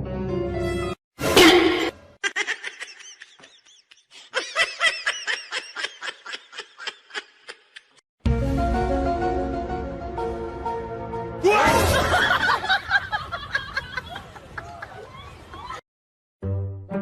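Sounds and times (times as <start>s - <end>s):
person laughing: 2.2s - 8.0s.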